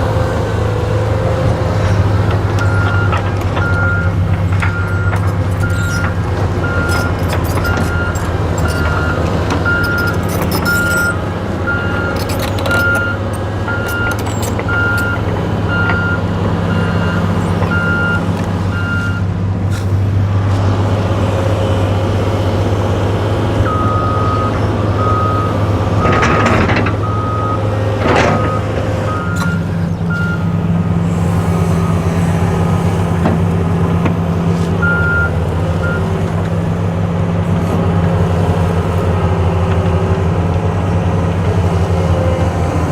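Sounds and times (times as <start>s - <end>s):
diesel heavy machinery running: 0.0s - 42.9s
backup alarms beeping: 2.6s - 19.3s, 27.0s - 31.0s, 34.8s - 36.2s.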